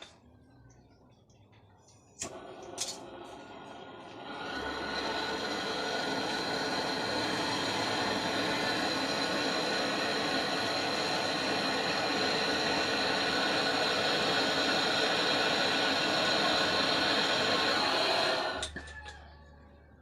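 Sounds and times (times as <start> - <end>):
electric motor and fan whining: 2.2 - 19.3.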